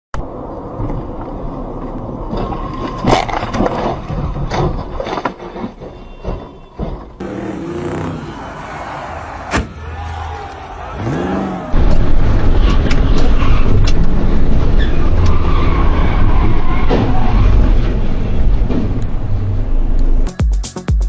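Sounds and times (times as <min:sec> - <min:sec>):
car and road noise: 0:00.1 - 0:20.3
vehicle impact bangs: 0:07.0 - 0:13.8.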